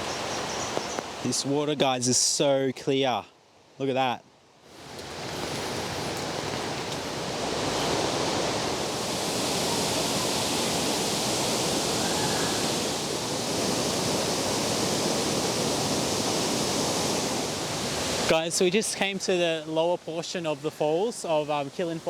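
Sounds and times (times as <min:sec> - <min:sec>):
waterfall rushing into pool: 0:07.3 - 0:22.0.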